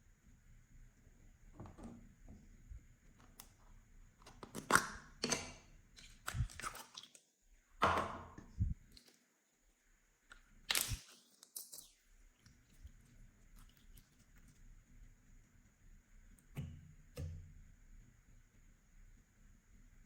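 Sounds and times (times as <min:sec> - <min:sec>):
slime squelching: 0:04.2 - 0:07.2, 0:10.3 - 0:14.7
slime crackling and popping: 0:10.7 - 0:11.9.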